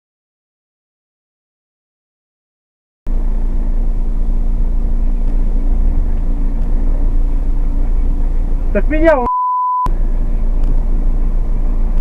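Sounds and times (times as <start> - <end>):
car engine and road noise: 3.1 - 12.0.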